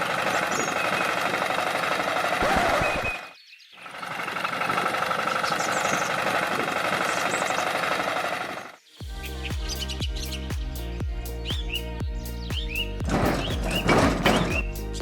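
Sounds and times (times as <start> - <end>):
small engine rattling: 0.0 - 3.0, 3.8 - 8.8, 13.0 - 15.0
music: 9.0 - 15.0.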